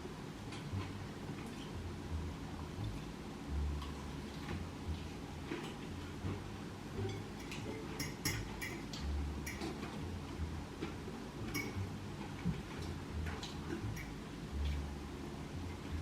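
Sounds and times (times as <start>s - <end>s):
cutlery clicking against plate: 7.1s - 9.8s, 11.5s - 11.8s, 14.0s - 14.2s.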